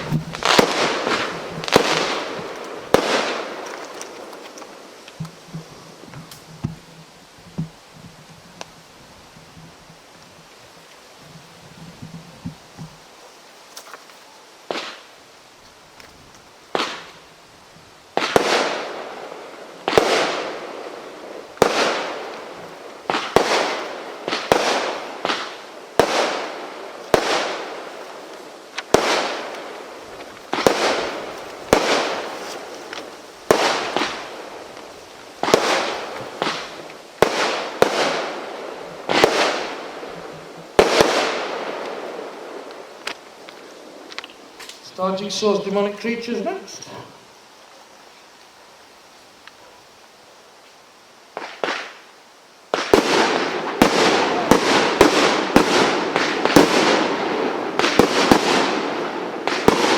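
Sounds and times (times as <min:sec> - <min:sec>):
firework bangs: 0:00.0 - 0:08.2, 0:14.7 - 0:15.1, 0:16.7 - 0:17.3, 0:18.1 - 0:46.6, 0:51.3 - 0:52.1, 0:52.7 - 0:59.9.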